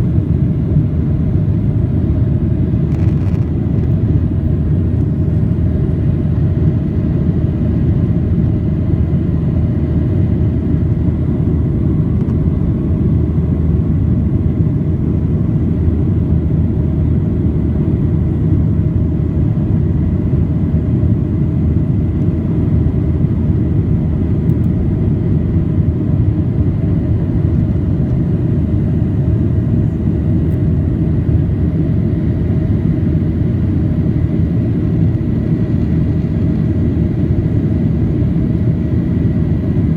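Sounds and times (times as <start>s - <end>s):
airliner engines rumbling: 0.0s - 39.9s.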